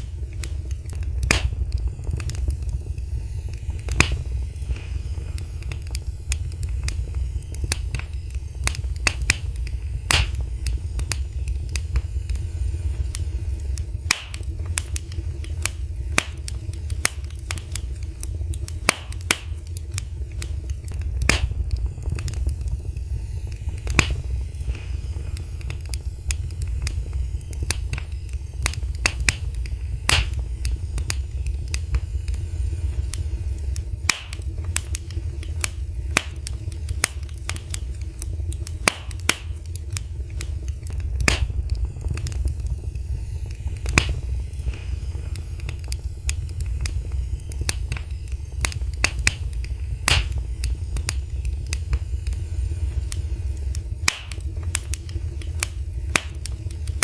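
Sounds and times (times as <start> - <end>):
low steady rumble: 0.0 - 57.0
wood fire crackling and popping: 0.0 - 57.0.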